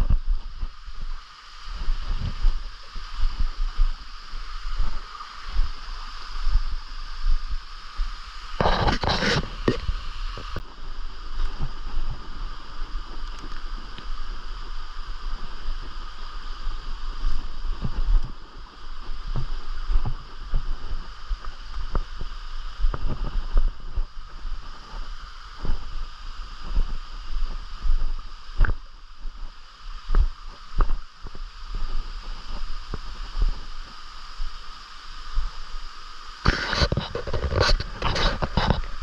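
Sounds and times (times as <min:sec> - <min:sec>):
wind buffeting microphone: 0:00.0 - 0:33.8
stream water flowing: 0:00.0 - 0:39.0.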